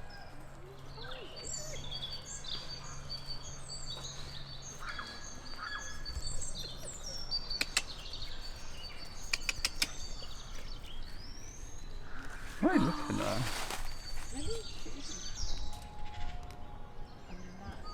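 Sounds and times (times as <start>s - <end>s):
small birds chirping: 0.0s - 17.9s
sharp clicks: 7.5s - 10.4s.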